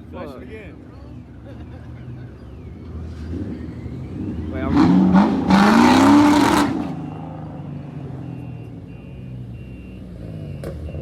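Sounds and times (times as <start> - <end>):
car engine revving and idling: 2.0 - 11.0.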